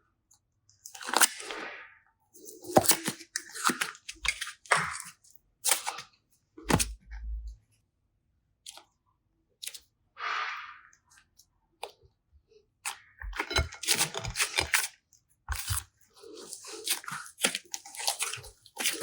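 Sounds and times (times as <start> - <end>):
slime squishing: 0.8 - 7.6, 12.8 - 19.0.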